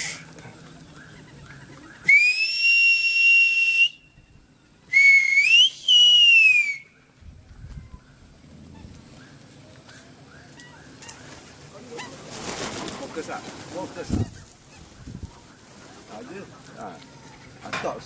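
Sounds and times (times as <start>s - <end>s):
person whistling loud notes: 2.1s - 4.1s, 4.9s - 6.9s.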